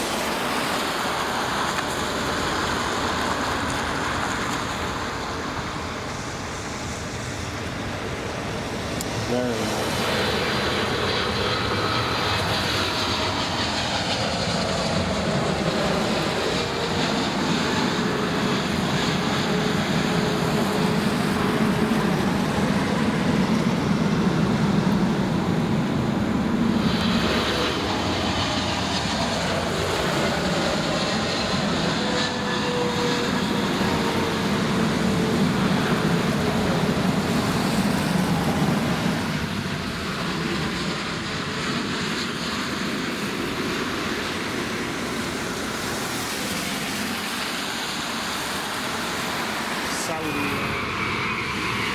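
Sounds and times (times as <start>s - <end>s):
jet engines roaring: 0.0s - 51.9s.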